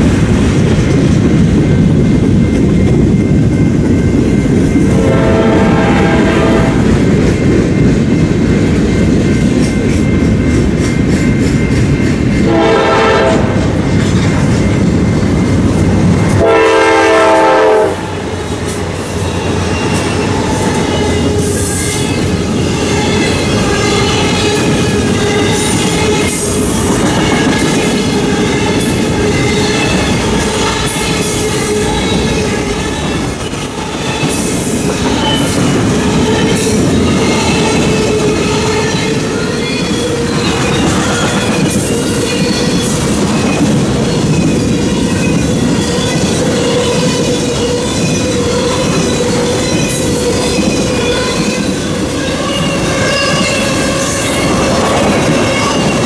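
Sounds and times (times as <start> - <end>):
train wheels rumbling: 0.0 - 56.0
locomotive air horn: 5.0 - 6.9, 12.5 - 13.7, 16.4 - 18.3.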